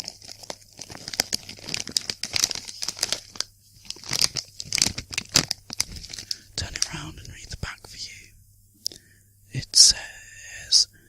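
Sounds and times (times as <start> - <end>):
crisp packet crinkling: 0.0 - 8.0.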